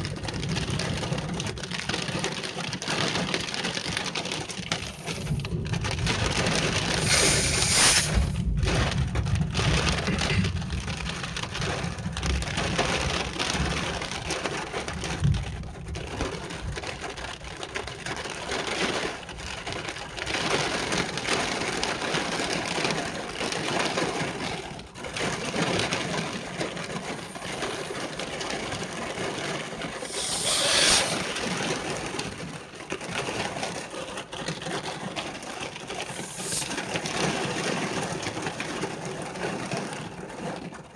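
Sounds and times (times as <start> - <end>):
heavy rain pouring: 0.0 - 40.8
hissing surges of rain: 4.5 - 8.7, 25.6 - 32.7, 35.9 - 37.9.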